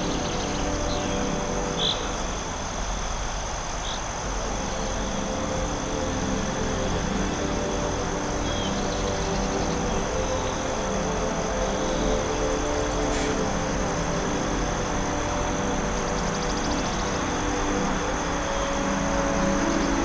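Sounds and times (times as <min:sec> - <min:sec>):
insect drone: 0:00.0 - 0:20.0.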